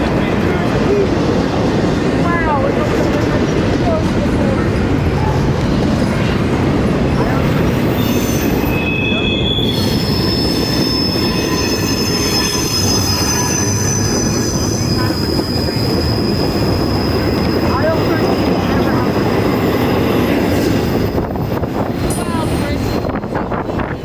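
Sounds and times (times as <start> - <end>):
train rumbling on rails: 0.0 - 24.0
wheels squealing on rail: 7.2 - 24.0.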